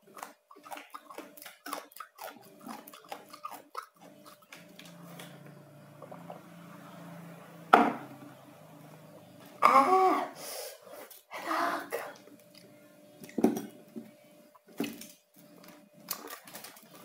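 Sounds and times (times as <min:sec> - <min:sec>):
crunchy chewing: 0:00.0 - 0:06.3
faint low hum: 0:00.9 - 0:10.4.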